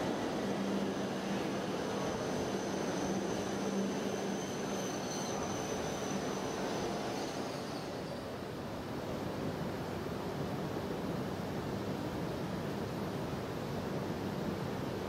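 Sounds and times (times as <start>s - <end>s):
train rolling past rumble: 0.0s - 8.6s.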